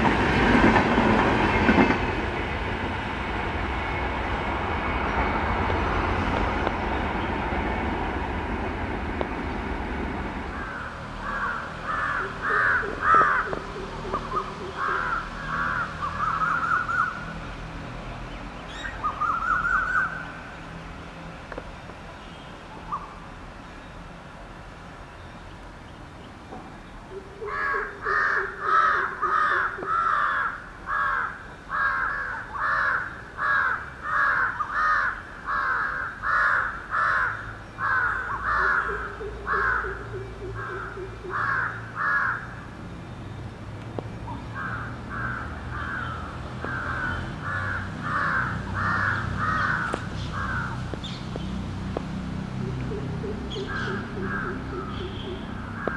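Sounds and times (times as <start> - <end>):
crow cawing: 10.6 - 17.2, 27.4 - 42.6, 44.5 - 50.9, 53.0 - 55.9.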